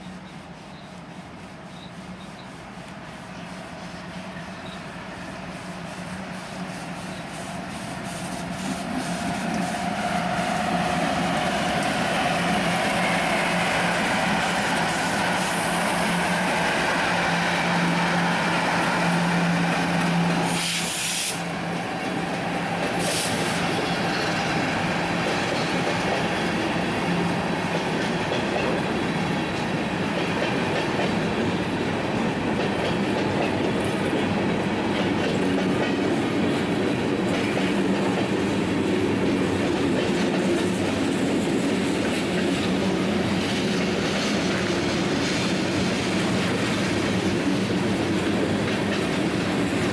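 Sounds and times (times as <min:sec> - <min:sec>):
train wheels clickety-clack: 0:00.0 - 0:49.9
high hiss burst: 0:11.7 - 0:21.7, 0:22.9 - 0:23.8.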